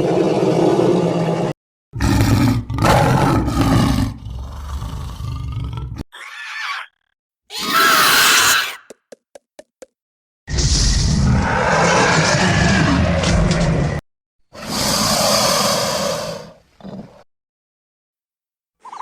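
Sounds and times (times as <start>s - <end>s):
dinosaur roars: 0.0s - 6.0s, 10.5s - 14.0s
low growl: 0.0s - 6.0s.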